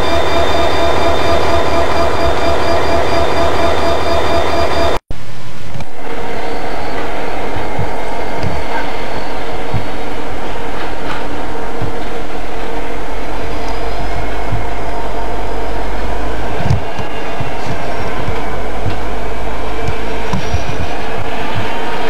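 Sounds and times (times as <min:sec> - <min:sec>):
train wheels rumbling on rail: 0:00.0 - 0:05.0, 0:05.8 - 0:22.0.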